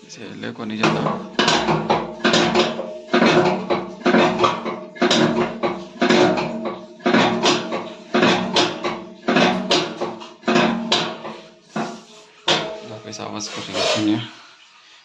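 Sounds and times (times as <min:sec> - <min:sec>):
washing machine drum knocking: 0:00.6 - 0:13.0.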